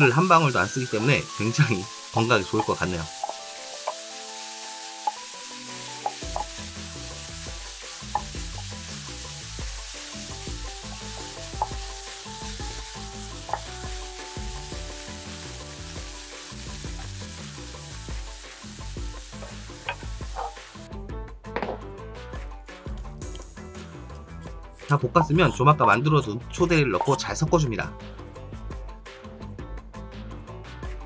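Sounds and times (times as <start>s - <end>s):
food sizzling in a frying pan: 0.0s - 20.9s
spatula clicking against pan: 8.0s - 8.4s.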